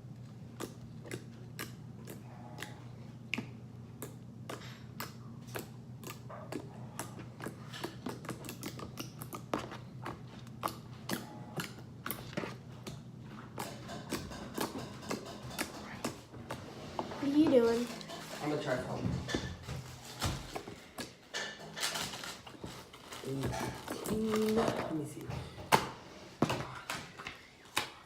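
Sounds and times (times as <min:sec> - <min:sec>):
slime squishing with wet clicks: 0:00.1 - 0:16.2.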